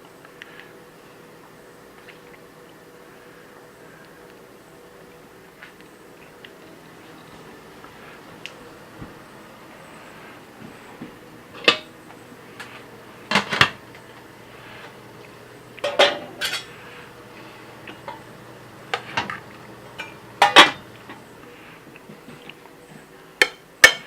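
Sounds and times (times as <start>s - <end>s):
cutlery clinking on plate: 15.8s - 16.7s, 23.4s - 24.0s.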